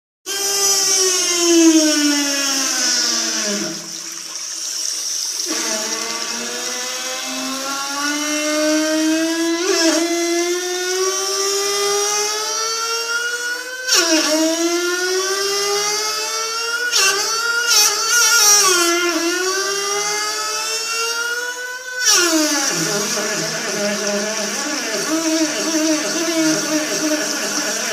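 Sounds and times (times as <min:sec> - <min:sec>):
high whining tone: 0:17.9 - 0:27.9.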